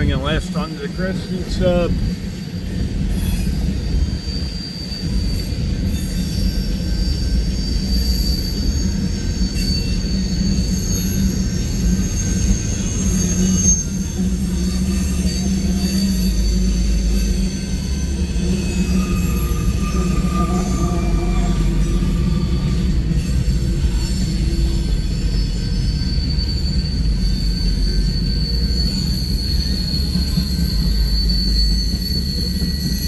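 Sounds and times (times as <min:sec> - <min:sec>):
rumble of rolling train cars: 0:00.0 - 0:33.0
train wheels squealing: 0:00.0 - 0:33.0.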